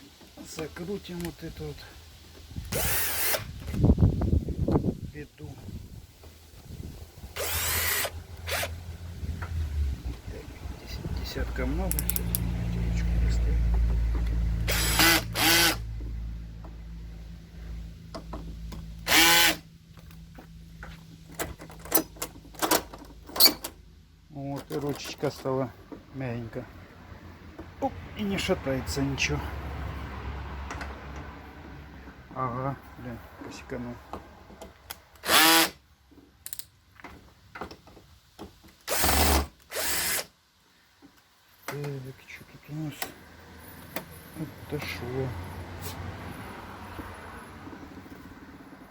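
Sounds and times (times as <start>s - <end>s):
cordless screwdriver driving screws: 2.7s - 3.5s, 7.4s - 8.7s, 14.7s - 15.8s, 19.1s - 19.6s, 35.2s - 35.8s, 38.9s - 40.3s.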